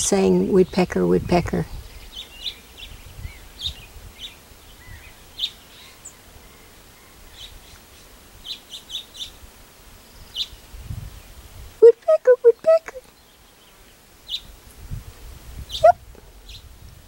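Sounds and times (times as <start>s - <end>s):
birds chirping: 0.0s - 9.4s, 10.0s - 11.4s, 12.0s - 14.6s.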